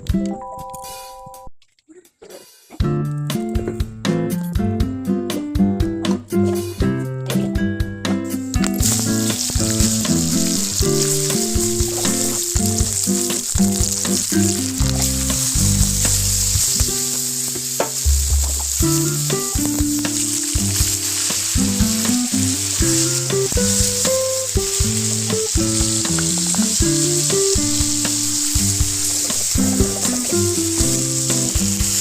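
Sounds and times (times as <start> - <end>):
background music: 2.8 - 32.0
food sizzling in oil: 8.5 - 32.0.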